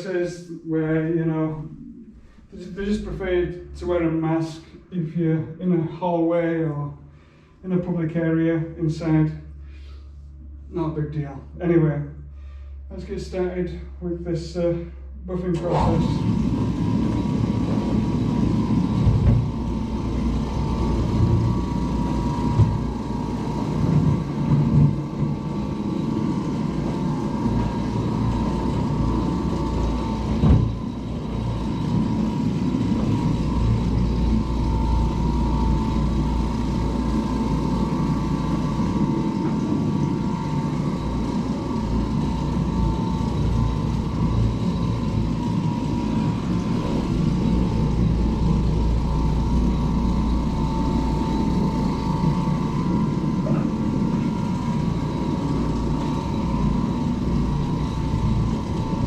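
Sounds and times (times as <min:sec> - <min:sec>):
floor machine motor hum: 0:15.3 - 0:59.0
machine bumping on floor: 0:30.4 - 0:30.8.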